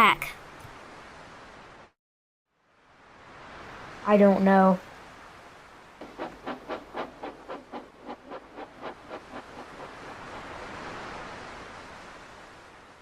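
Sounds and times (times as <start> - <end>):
steam locomotive chuffing: 6.0 - 10.6.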